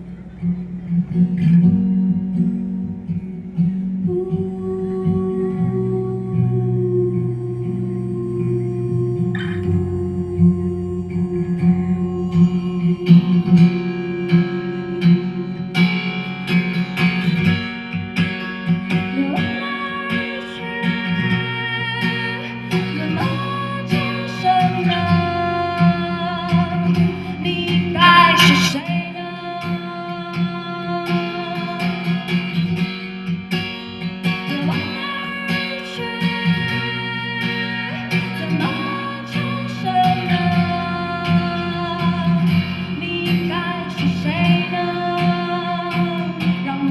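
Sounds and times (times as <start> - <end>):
strummed acoustic guitar: 0.0 - 46.9
woman singing long notes: 3.8 - 16.4, 19.1 - 32.2.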